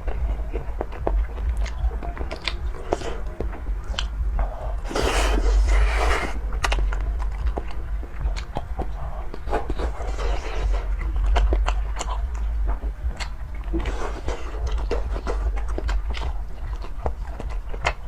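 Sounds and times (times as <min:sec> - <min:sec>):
chewing and biting food: 0:00.0 - 0:18.0
low steady hum: 0:00.0 - 0:18.0
wet clicks and crunches: 0:00.0 - 0:18.0.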